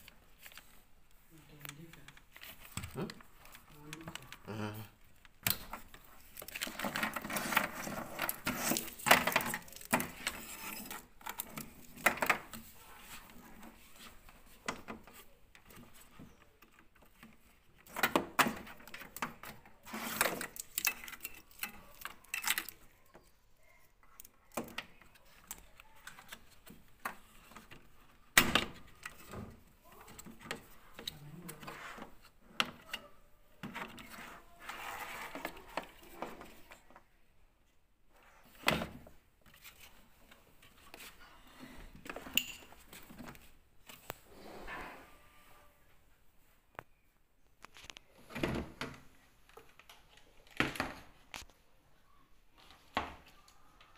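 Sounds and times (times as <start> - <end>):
tools and parts clicking and rattling: 5.3 - 12.7, 14.6 - 22.9, 42.0 - 44.1.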